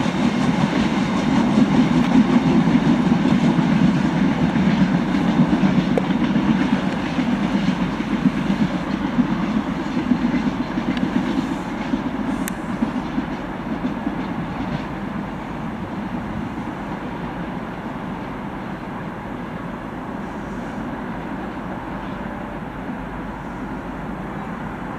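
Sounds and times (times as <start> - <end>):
train wheels clattering on rails: 0.0 - 18.7.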